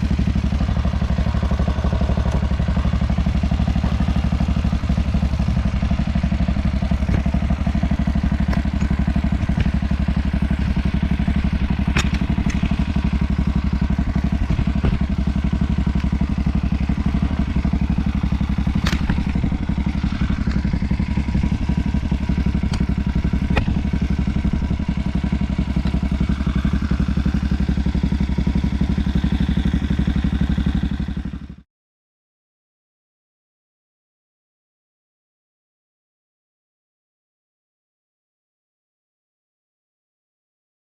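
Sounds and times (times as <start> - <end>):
motorbike engine running: 0.0 - 31.6
sharp clicks: 11.9 - 12.8.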